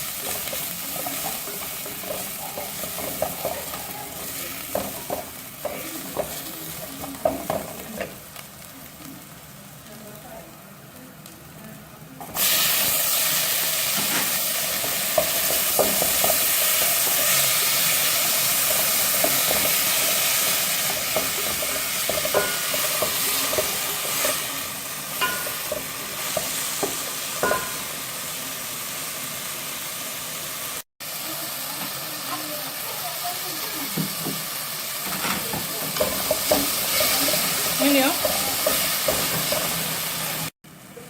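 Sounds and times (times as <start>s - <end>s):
spoon scraping a pan: 0.0s - 8.2s, 13.9s - 28.0s, 35.0s - 40.3s
food sizzling in a frying pan: 0.0s - 41.0s.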